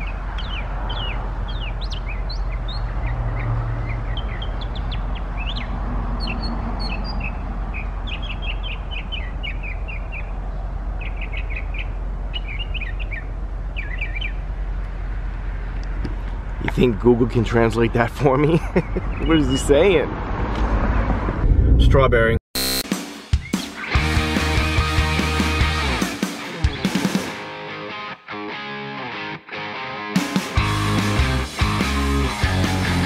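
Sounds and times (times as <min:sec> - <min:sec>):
bird singing: 0:00.0 - 0:14.5, 0:18.6 - 0:19.8.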